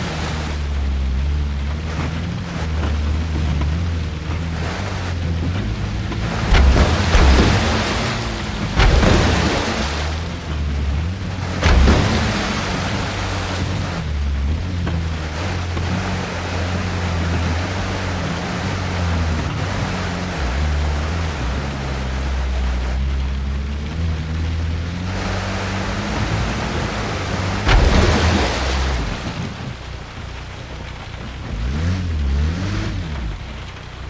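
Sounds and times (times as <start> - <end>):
heavy rain and rushing water: 0.0 - 34.0
sharp knock: 6.4 - 10.4.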